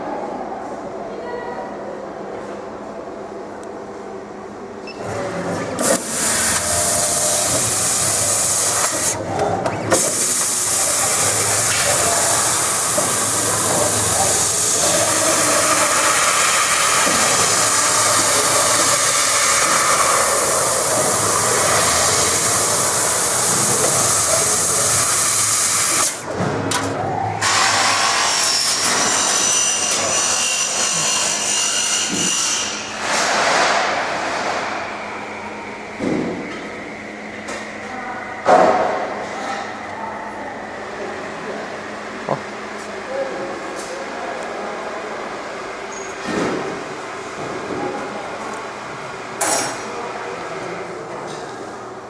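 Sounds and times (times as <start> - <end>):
laser cutter hissing: 5.8 - 9.2, 9.9 - 26.2.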